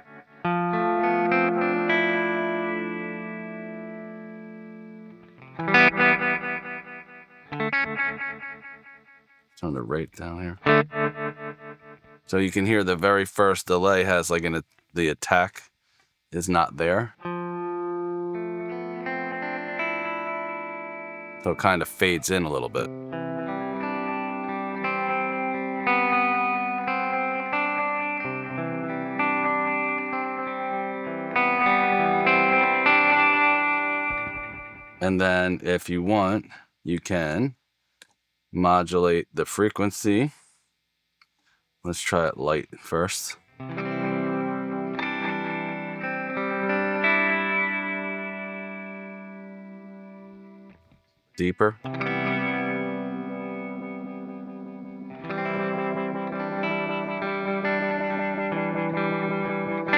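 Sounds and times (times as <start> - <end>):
electric guitar with delay: 0.0 - 9.4, 10.6 - 12.2, 17.2 - 35.4, 43.6 - 50.8, 51.8 - 59.9.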